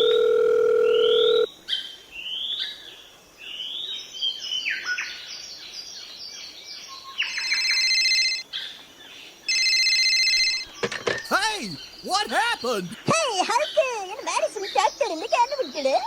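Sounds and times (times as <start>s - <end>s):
telephone-like tone: 0.0s - 1.5s.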